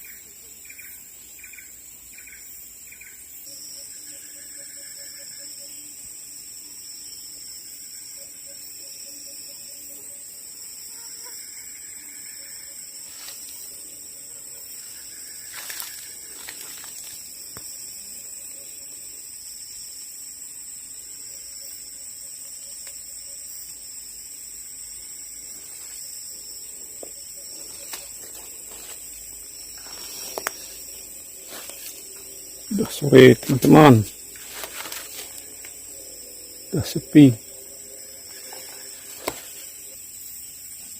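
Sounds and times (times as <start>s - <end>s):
high-pitched insect drone: 0.0s - 40.9s
low pulsing calls: 26.6s - 40.0s.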